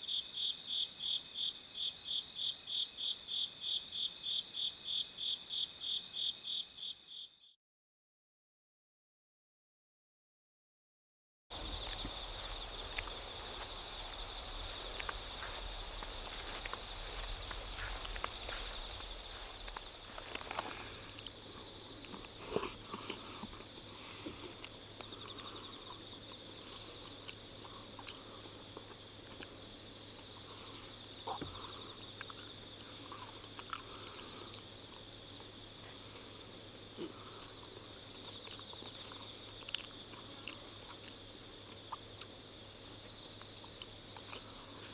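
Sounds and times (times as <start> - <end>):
faint low hum: 11.5 - 29.6
crickets and insects trilling: 11.5 - 44.9.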